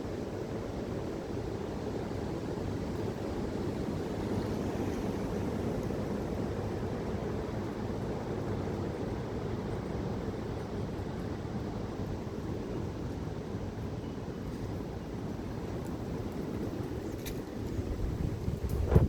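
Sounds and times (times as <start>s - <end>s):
wind buffeting microphone: 16.2s - 19.0s.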